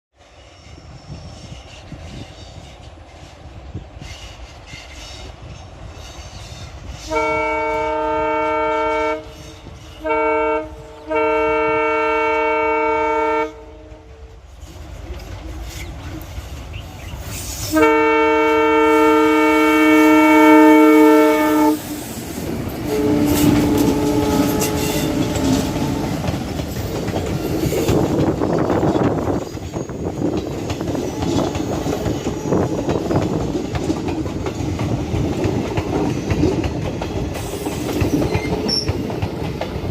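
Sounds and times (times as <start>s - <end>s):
train rumble: 0.2s - 39.9s
locomotive horn blasts: 7.1s - 9.4s, 10.0s - 14.3s, 17.7s - 22.0s, 22.8s - 26.3s
wheels clacking on rail joints: 13.9s - 18.0s, 21.3s - 39.9s.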